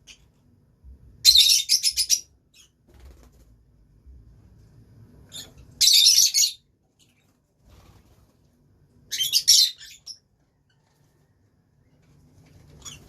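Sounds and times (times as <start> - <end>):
lovebirds chattering screeches: 5.3 - 7.3, 9.1 - 10.2, 12.7 - 13.0.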